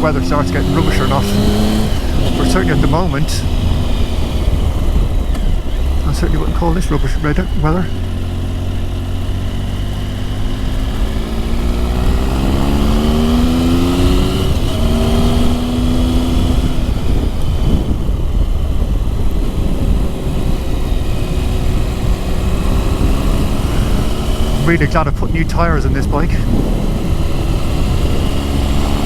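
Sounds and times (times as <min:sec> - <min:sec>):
motorcycle engine: 0:00.0 - 0:29.0
wind noise rumble: 0:00.0 - 0:29.0.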